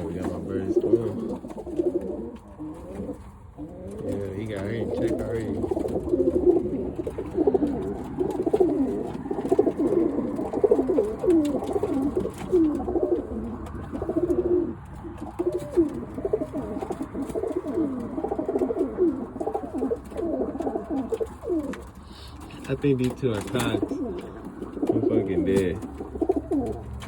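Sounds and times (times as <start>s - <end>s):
pigeons cooing: 0.0s - 27.0s.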